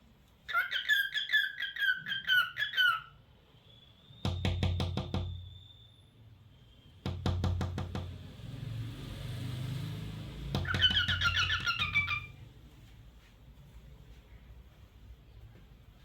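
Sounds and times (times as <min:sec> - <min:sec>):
cockatiel chirping: 0:00.5 - 0:03.2, 0:10.6 - 0:12.4.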